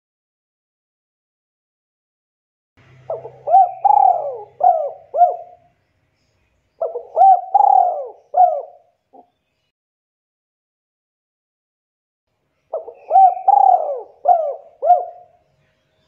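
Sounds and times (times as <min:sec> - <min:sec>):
dove cooing: 0:03.1 - 0:05.7, 0:06.8 - 0:09.3, 0:12.7 - 0:15.4.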